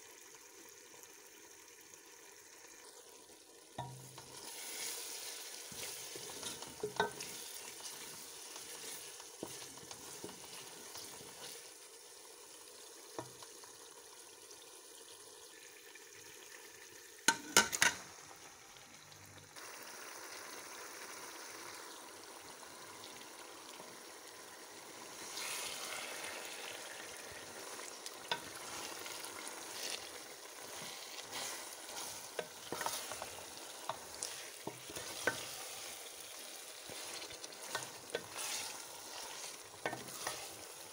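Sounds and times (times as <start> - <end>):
food sizzling in a pan: 0.0 - 40.9
wooden spatula stirring: 3.8 - 11.8, 25.2 - 40.9.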